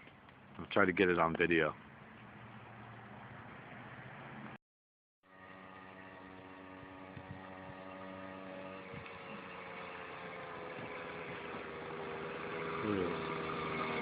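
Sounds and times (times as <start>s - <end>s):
motorized bicycle engine: 5.3s - 14.0s.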